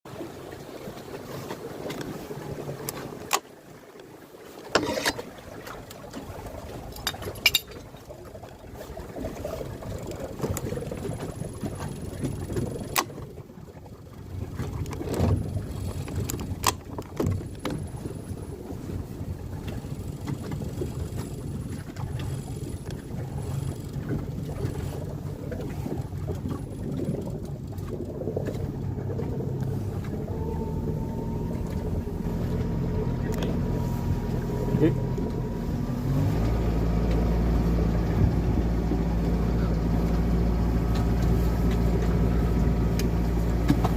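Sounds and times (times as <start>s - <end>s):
boat engine rumbling: 0.1s - 43.9s.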